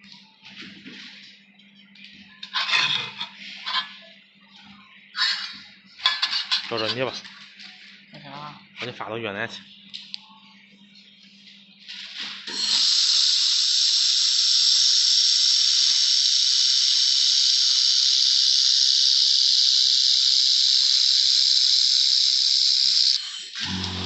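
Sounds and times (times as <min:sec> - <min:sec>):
welding machine high hiss: 0:12.5 - 0:24.0.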